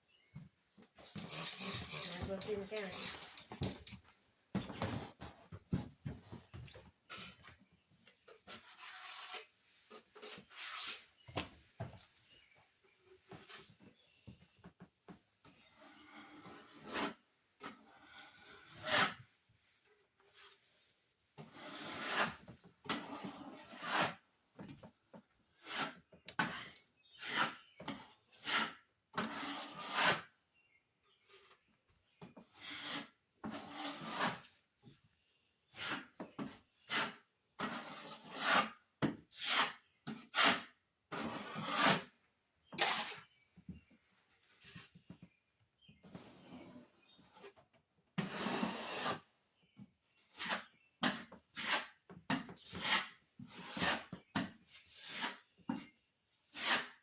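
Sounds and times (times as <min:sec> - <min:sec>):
hand tool scraping a surface: 0:01.0 - 0:03.3, 0:08.3 - 0:11.2, 0:15.5 - 0:20.8, 0:21.4 - 0:24.2, 0:25.6 - 0:30.3, 0:32.3 - 0:34.5, 0:35.7 - 0:42.1, 0:42.7 - 0:43.4, 0:48.2 - 0:49.3, 0:50.2 - 0:57.0.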